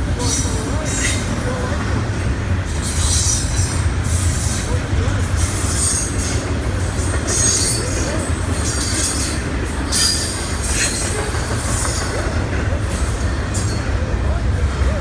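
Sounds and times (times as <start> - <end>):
train cars rolling rumble: 0.0 - 15.0.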